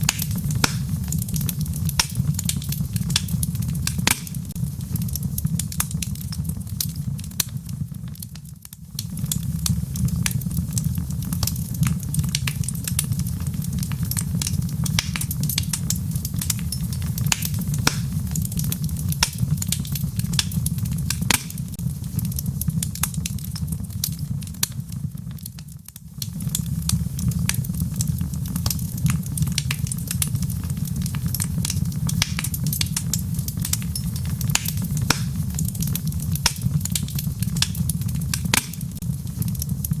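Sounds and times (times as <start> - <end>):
logs crackling and popping: 0.0 - 40.0
low rumble of flames: 0.0 - 40.0.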